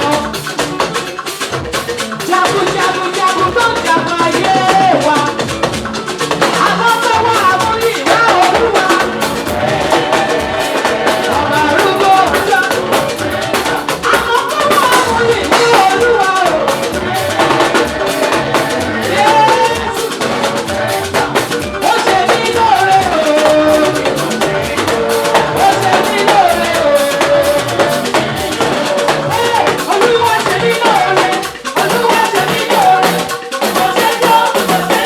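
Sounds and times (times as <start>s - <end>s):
drum kit with rimshots: 0.0s - 35.0s
live band music: 0.0s - 35.0s
gliding melody line: 5.8s - 33.6s.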